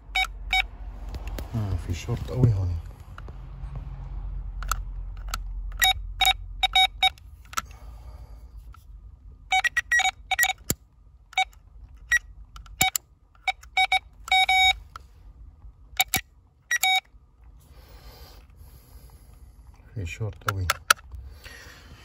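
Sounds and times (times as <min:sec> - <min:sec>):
circuit tester beeping: 0:00.0 - 0:00.7, 0:05.7 - 0:07.2, 0:09.5 - 0:10.7, 0:11.3 - 0:14.8, 0:16.0 - 0:17.1.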